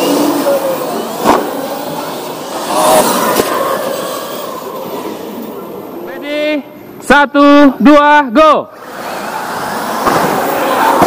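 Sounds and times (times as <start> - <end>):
tyre noise: 0.0 - 6.0
rc truck motor whine: 0.0 - 6.2.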